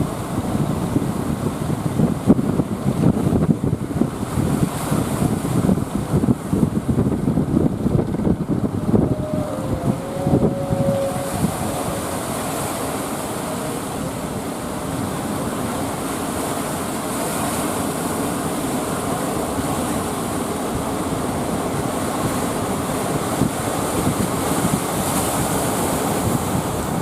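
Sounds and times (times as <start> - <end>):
surf: 0.0 - 27.0
wind blowing over microphone: 0.0 - 27.0.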